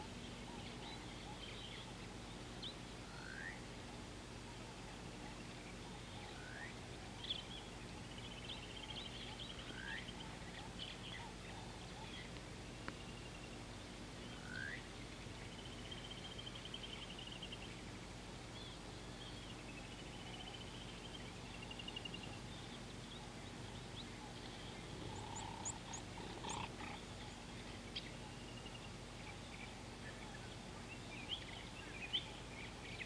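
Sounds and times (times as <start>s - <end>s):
bird chirps: 18.6s - 33.0s.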